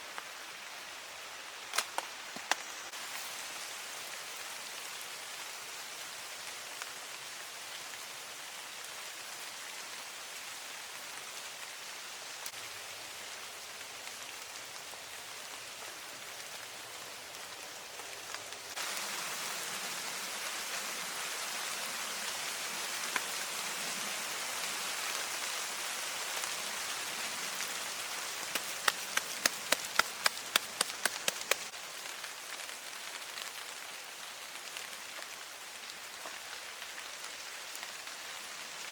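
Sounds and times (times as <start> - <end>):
steady rainfall: 0.0 - 38.9
sharp clicks: 28.5 - 31.7.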